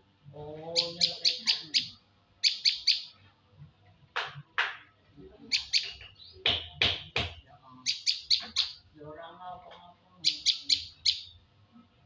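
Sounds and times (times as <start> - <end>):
bird sharp calls: 0.7 - 3.1, 7.8 - 8.8, 10.2 - 11.3
bird singing high chirps: 0.7 - 3.2, 5.5 - 6.5, 7.8 - 8.8, 10.2 - 11.4.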